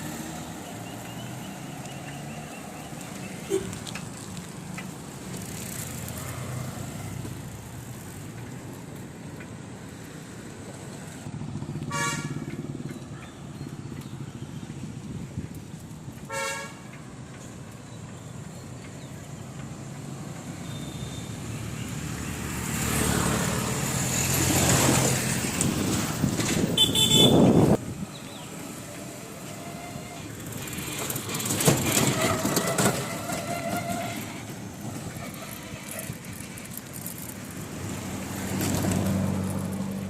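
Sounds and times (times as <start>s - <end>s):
street traffic passing: 0.0s - 40.0s
car horn toot: 11.9s - 12.5s, 16.3s - 16.8s, 26.7s - 27.8s
vehicle high beep: 20.6s - 21.4s.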